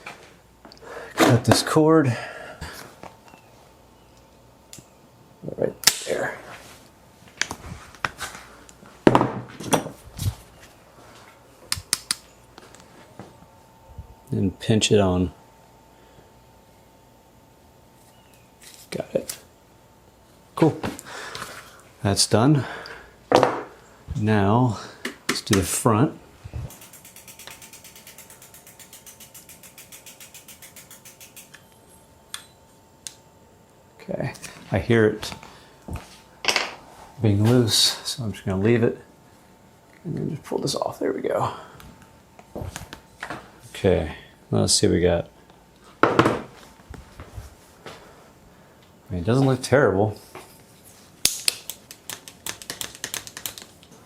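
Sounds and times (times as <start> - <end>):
bicycle freewheel ticking: 26.7 - 31.8
metal tools clicking and clinking: 26.7 - 32.6.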